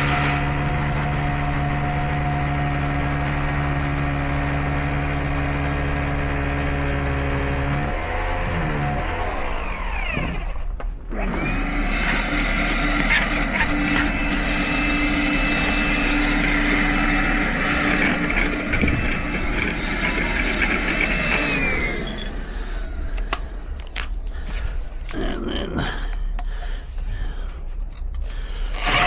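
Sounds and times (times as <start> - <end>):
small electric motor running: 6.9 - 23.4, 28.8 - 29.0.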